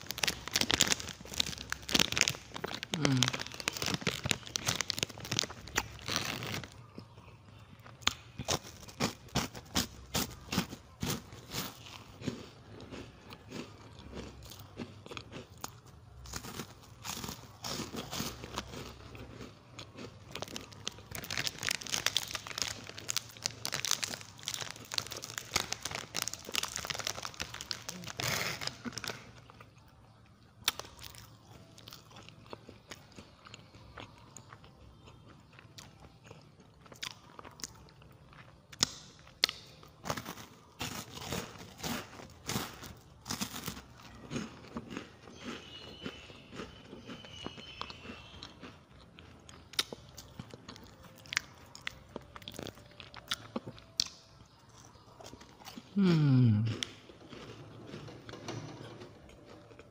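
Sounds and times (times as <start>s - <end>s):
plastic wrapper crinkling: 0.0s - 6.8s, 20.3s - 29.4s
chewing crunchy wafers: 0.0s - 59.9s.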